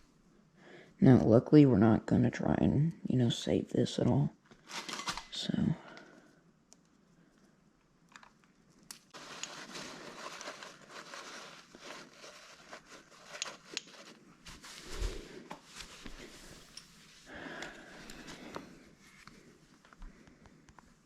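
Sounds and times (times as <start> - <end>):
crinkling scraping and tearing: 4.6 - 5.5, 8.6 - 16.6.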